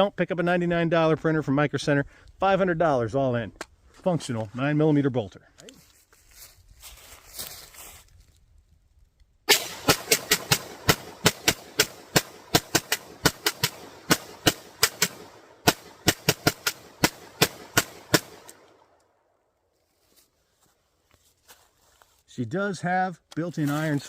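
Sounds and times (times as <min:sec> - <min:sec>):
rapid pistol shots: 0:09.5 - 0:18.8.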